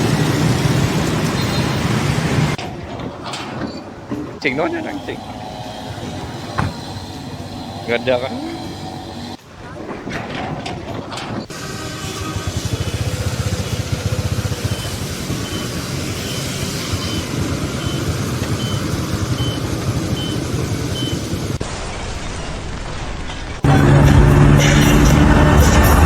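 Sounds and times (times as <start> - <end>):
heavy vehicle engine running: 0.0 - 2.6, 4.2 - 9.4, 11.5 - 26.0
reversing alarm beeps: 14.3 - 21.5.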